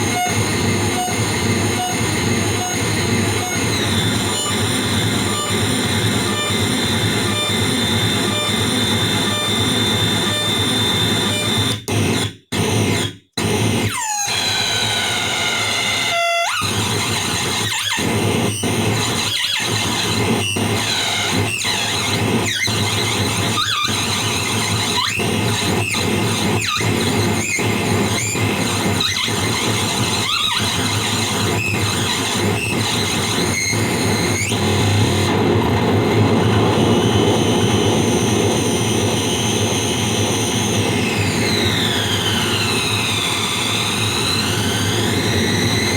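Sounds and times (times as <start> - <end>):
delay pedal squealing noise: 0.0 - 11.8, 13.9 - 45.9.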